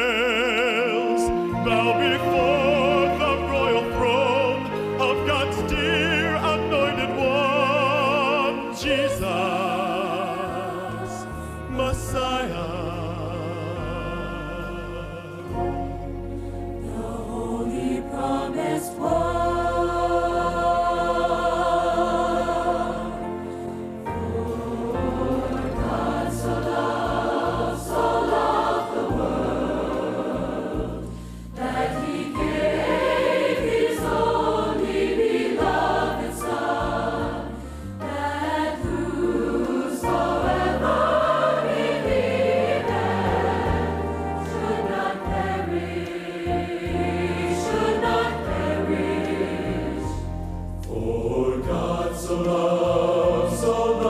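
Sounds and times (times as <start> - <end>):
choir singing gospel song: 0.0 - 54.0
instrumental accompaniment: 0.0 - 54.0.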